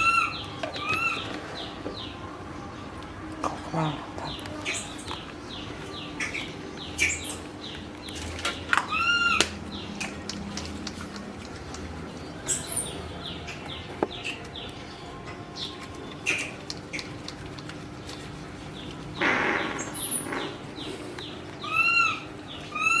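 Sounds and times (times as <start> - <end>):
high animal chirps: 19.2 - 20.7, 21.6 - 23.0.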